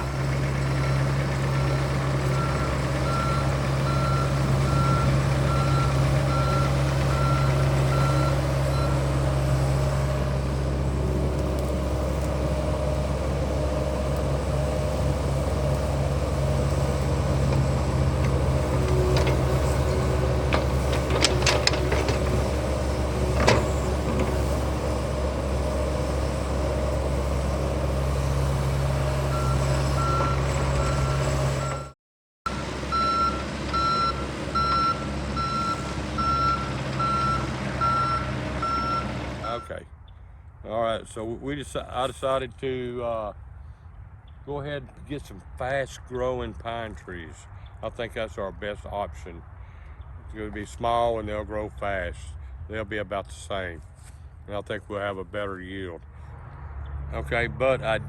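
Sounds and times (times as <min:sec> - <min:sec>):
excavator running: 0:00.0 - 0:31.9, 0:32.5 - 0:39.8
travel alarm beeps: 0:02.3 - 0:09.0, 0:29.3 - 0:31.9, 0:32.5 - 0:39.7.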